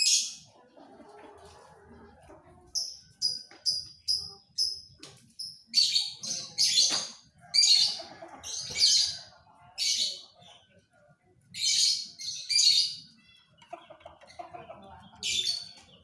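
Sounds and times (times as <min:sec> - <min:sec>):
canary singing: 0:00.0 - 0:00.6, 0:02.4 - 0:10.4, 0:11.5 - 0:16.0.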